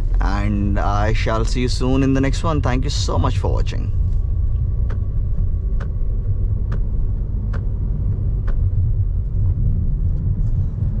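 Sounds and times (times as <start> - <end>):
road and tyre rumble: 0.0 - 11.0.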